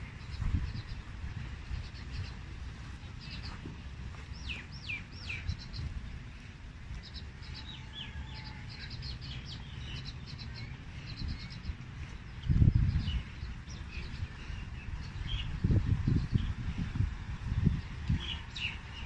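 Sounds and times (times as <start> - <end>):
small birds chirping: 0.0 - 19.0
wind rumble on microphone: 0.0 - 19.0.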